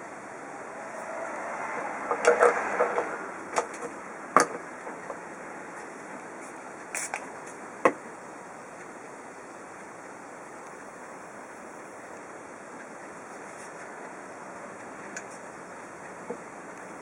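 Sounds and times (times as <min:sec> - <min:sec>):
sharp clicks and knocks: 0:02.1 - 0:05.2
steady hiss: 0:02.9 - 0:17.0.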